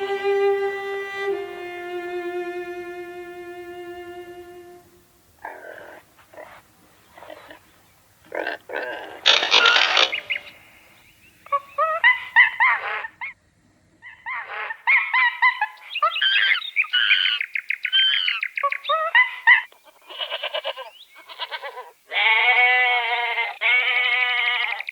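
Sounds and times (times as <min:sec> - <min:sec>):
long steady bleat: 0:20.0 - 0:24.9
animal honking or bleating calls: 0:20.1 - 0:24.9.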